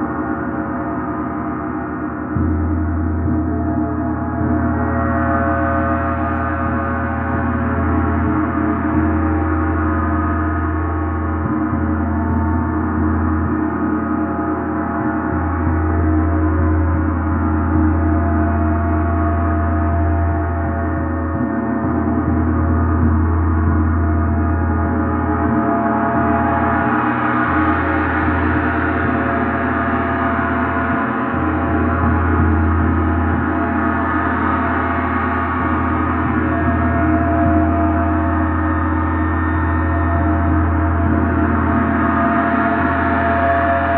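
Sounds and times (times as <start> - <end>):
gong ringing: 35.4 - 43.9.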